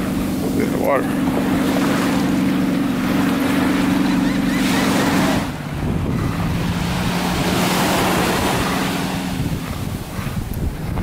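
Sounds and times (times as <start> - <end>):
low motor hum: 0.0 - 11.0
surf on beach: 0.0 - 11.0
wind buffeting microphone: 0.0 - 11.0.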